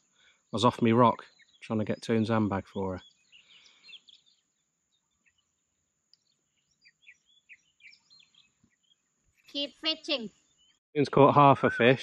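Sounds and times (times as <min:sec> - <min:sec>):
faint bird chirps: 0:00.0 - 0:10.8.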